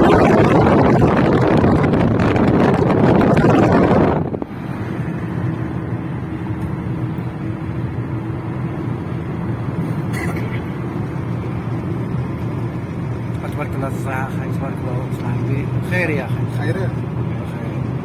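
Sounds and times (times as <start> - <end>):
wind noise on microphone: 0.0 - 5.4
vehicle engine running: 0.0 - 18.0.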